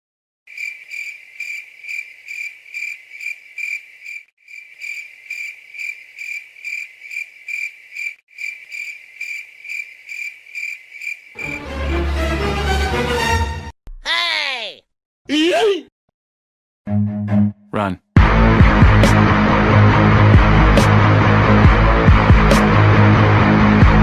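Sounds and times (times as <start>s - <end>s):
cricket chirping: 0.5s - 11.6s.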